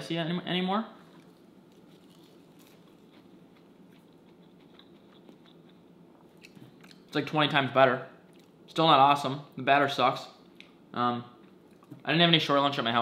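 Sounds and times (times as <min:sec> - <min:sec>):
chewing crispy fried fish: 0:01.1 - 0:07.1.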